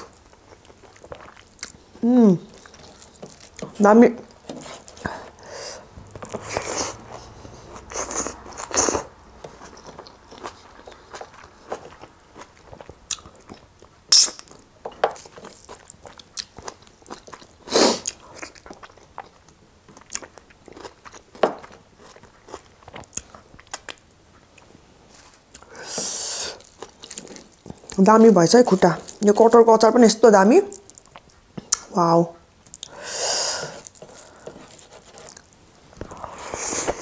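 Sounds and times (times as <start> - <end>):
person chewing: 0.0 - 29.2, 32.6 - 37.0.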